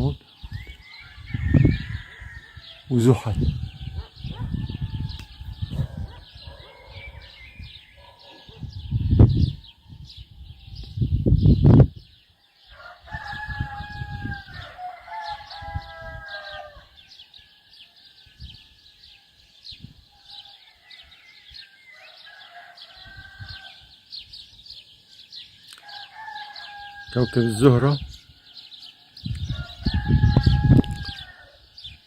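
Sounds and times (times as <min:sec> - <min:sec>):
small birds chirping: 0:00.0 - 0:32.0
rooster crowing: 0:00.8 - 0:07.4, 0:12.6 - 0:18.0, 0:20.1 - 0:23.9, 0:25.8 - 0:31.6.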